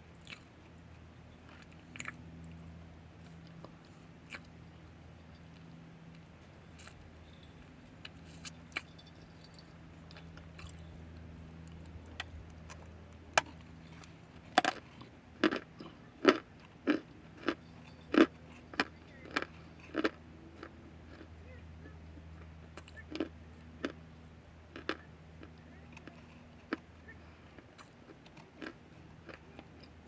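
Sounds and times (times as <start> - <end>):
cornstarch being bitten and chewed: 1.5 - 2.2, 14.6 - 17.6, 27.6 - 29.9.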